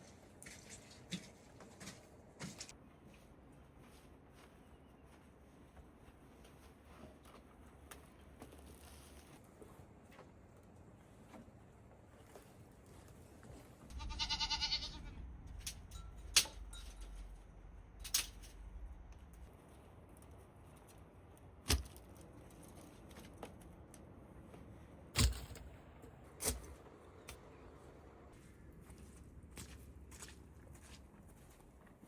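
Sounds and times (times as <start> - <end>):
sheep or goat bleating: 13.9 - 15.2.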